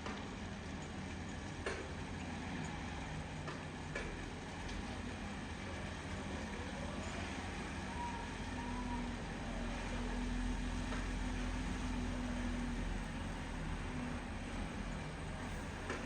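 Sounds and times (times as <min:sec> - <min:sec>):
engine rumbling: 0:09.9 - 0:16.0.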